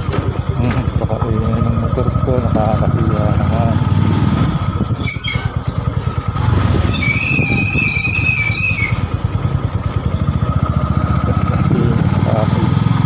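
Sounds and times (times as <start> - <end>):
brake squealing: 0.0 - 10.7
motorcycle engine running: 0.0 - 13.0.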